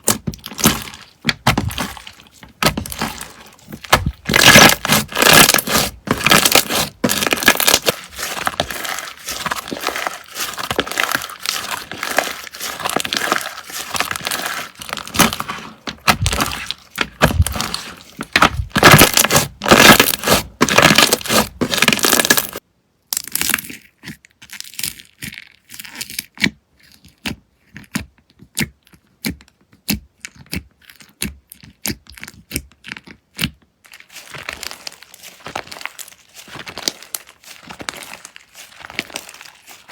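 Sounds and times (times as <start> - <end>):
slime crackling: 0.0 - 22.6, 33.8 - 39.9.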